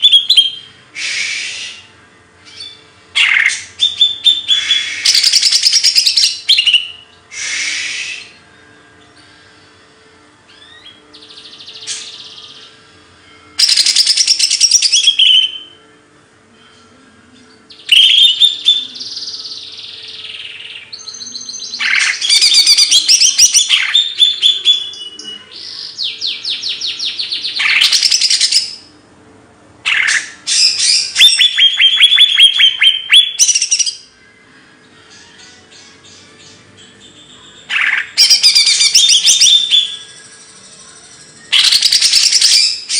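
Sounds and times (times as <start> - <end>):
faint steady hum: 0.0 - 31.5
songbird trilling and chirping: 2.4 - 8.3, 13.6 - 15.7, 17.7 - 28.9, 29.9 - 34.1, 35.1 - 42.9.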